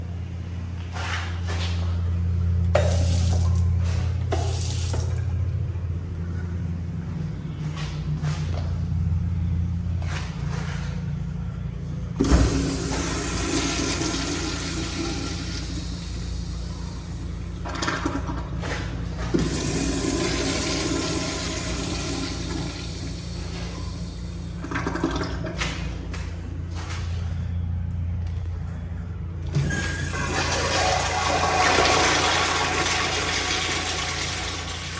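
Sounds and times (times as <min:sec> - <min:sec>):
steady low hum: 0:00.0 - 0:34.9
toilet flush clunk: 0:02.8 - 0:05.3, 0:12.2 - 0:25.8, 0:29.5 - 0:34.9.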